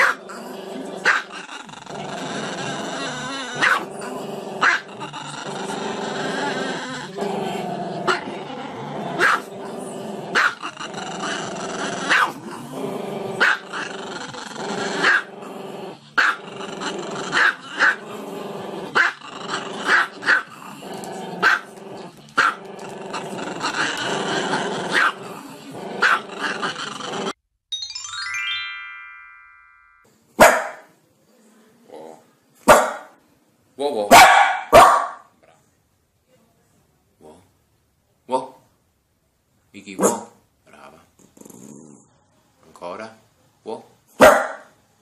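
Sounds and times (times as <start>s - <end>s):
dog growling: 0.0s - 27.4s, 40.7s - 42.2s
dog barking sharply: 30.4s - 30.9s, 32.7s - 33.1s, 34.1s - 35.3s, 40.0s - 40.4s, 44.2s - 44.7s.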